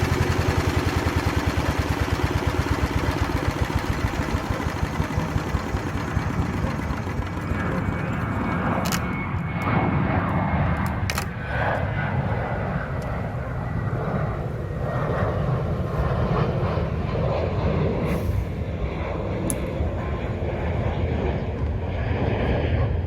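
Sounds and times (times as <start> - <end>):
diesel tiller engine running: 0.0 - 9.1.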